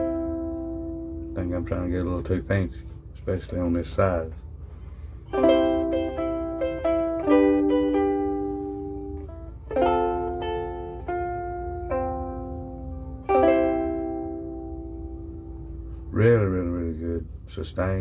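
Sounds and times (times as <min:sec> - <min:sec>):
ukulele plucked notes: 0:00.0 - 0:01.8, 0:05.3 - 0:16.0
ukulele strummed chords: 0:00.0 - 0:02.8, 0:05.3 - 0:16.1.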